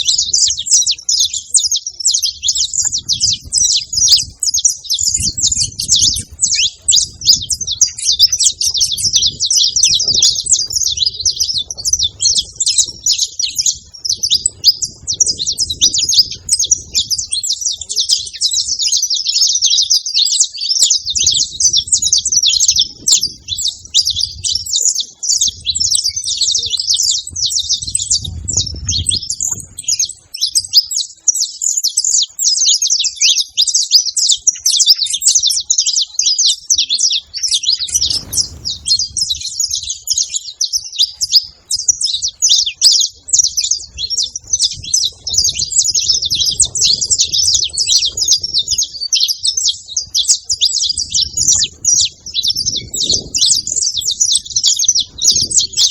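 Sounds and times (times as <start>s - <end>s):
finch chirping and trilling: 0.0s - 55.9s
low rumble: 37.8s - 40.2s.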